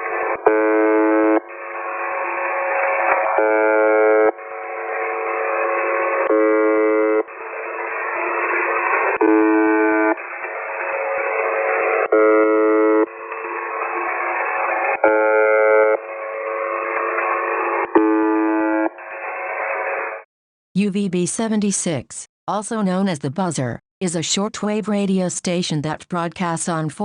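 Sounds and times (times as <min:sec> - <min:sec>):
harsh radio buzz tones: 0:00.0 - 0:20.3.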